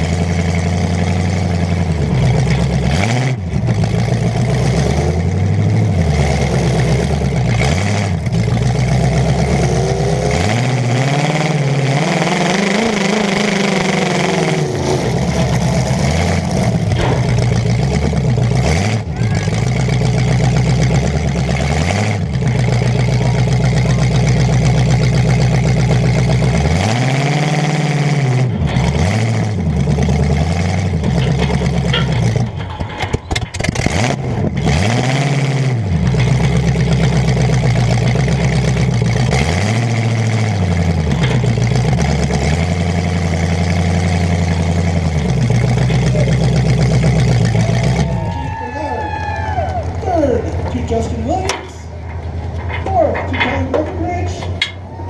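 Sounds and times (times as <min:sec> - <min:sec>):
car engine revving: 0:00.0 - 0:48.5
engine sharp pops: 0:12.0 - 0:27.1, 0:28.4 - 0:39.8, 0:40.6 - 0:48.1.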